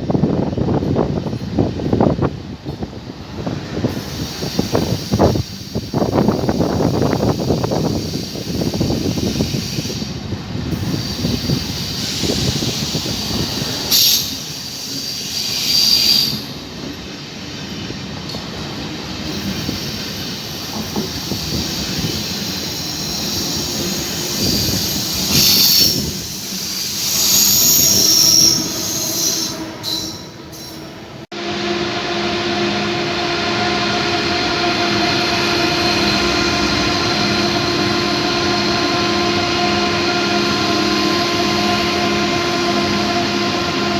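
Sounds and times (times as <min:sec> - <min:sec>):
train rumbling: 0:00.0 - 0:43.9
train wheels squealing: 0:03.8 - 0:10.2, 0:10.8 - 0:18.0, 0:19.1 - 0:31.0.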